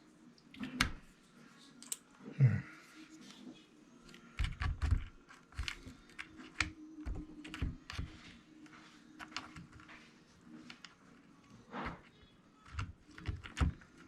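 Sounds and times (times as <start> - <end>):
small parts clicking and tapping: 4.1 - 8.2, 9.2 - 9.9, 11.9 - 14.0.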